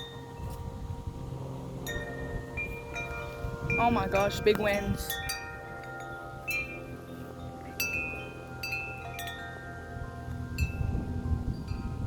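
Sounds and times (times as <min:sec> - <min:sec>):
low rumble of wind: 0:00.0 - 0:12.0
wind chimes ringing: 0:00.0 - 0:12.0.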